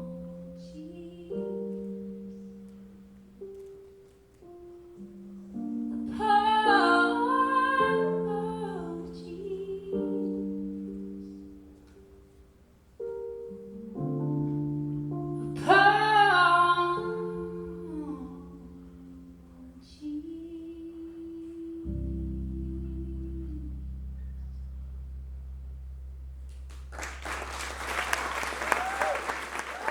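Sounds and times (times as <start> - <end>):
woman singing: 0.0 - 2.1, 5.9 - 10.9, 15.4 - 23.8.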